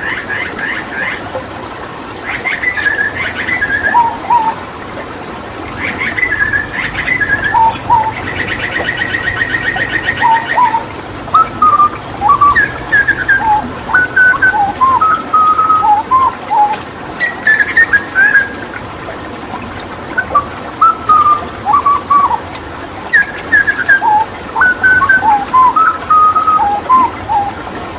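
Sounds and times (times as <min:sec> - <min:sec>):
running water hiss: 0:00.0 - 0:27.9
bird whistling and trilling: 0:02.4 - 0:04.6, 0:05.8 - 0:18.8, 0:20.2 - 0:22.4, 0:23.1 - 0:27.6.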